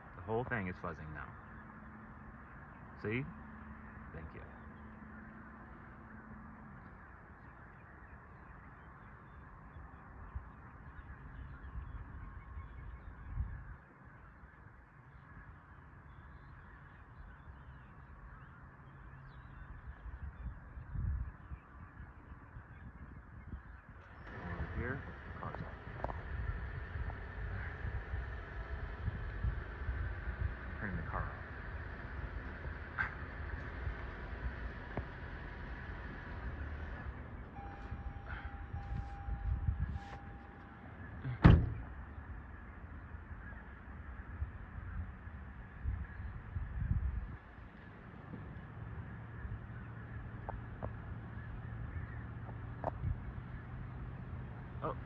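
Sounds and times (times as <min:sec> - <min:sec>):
low steady rumble: 0:00.0 - 0:14.2, 0:15.0 - 0:55.0
flock of birds calling: 0:00.0 - 0:55.0
car warning chime: 0:36.7 - 0:41.6
car door slamming: 0:41.3 - 0:41.9.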